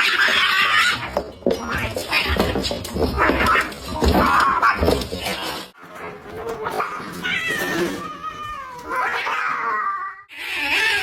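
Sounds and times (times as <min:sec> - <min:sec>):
cat yowling: 0:06.9 - 0:11.0.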